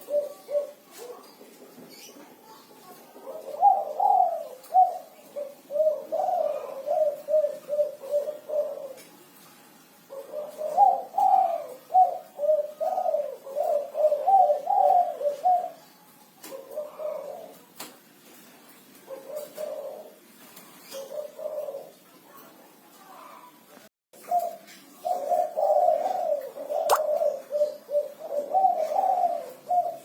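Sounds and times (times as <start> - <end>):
dove cooing: 0.0 - 9.1, 10.0 - 18.0, 18.9 - 22.2, 24.2 - 30.0.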